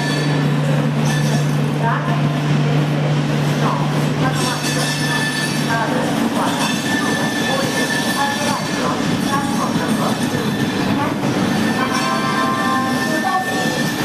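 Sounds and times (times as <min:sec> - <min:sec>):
metallic wheel squeal: 0:00.0 - 0:00.4, 0:04.4 - 0:05.8, 0:06.5 - 0:09.4, 0:11.5 - 0:14.0
train rumbling on rails: 0:00.0 - 0:14.0.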